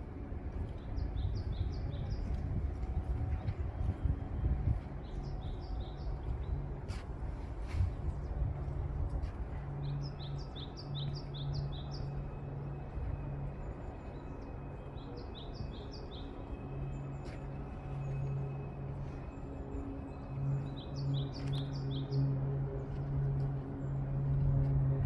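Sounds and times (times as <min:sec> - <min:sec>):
wind noise: 0:00.0 - 0:06.8.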